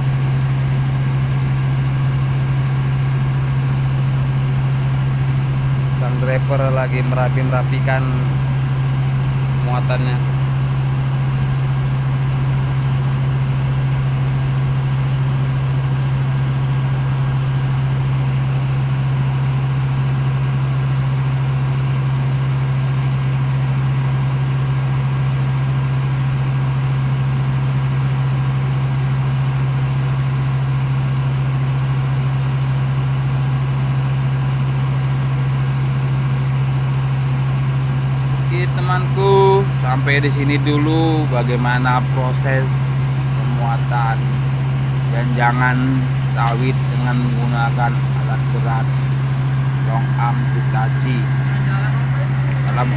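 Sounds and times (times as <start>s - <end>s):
diesel engine idling: 0.0s - 52.9s.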